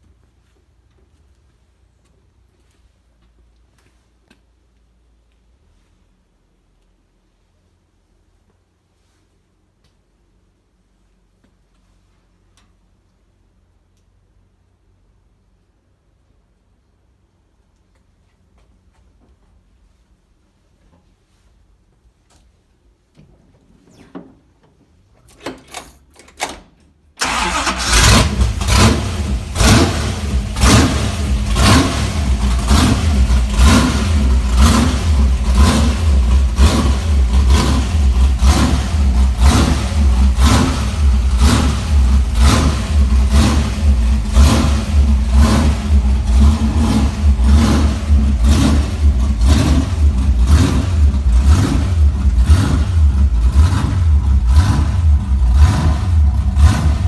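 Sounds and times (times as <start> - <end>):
car engine starting and running: 27.2 - 57.0.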